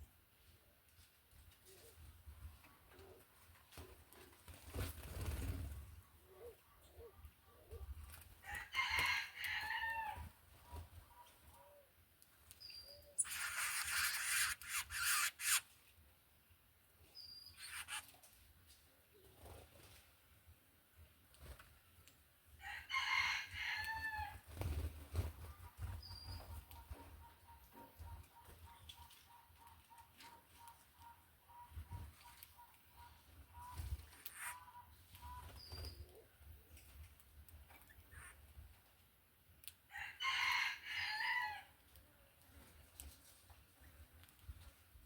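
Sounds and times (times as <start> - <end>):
high bird chirps: 12.6 - 15.6, 17.2 - 18.0
rooster crowing: 39.9 - 41.7.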